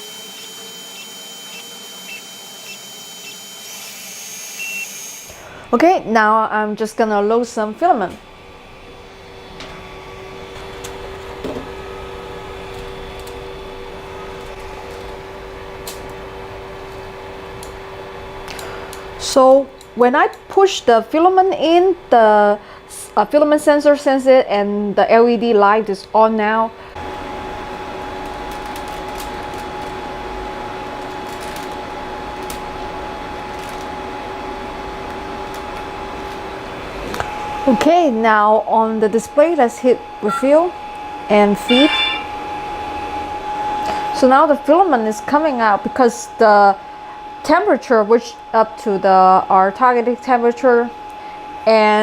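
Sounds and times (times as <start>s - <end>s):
three d printer humming: 0.0s - 4.9s, 40.1s - 43.0s
cooling fans whirring: 0.0s - 52.0s
two-note hum: 40.2s - 42.6s.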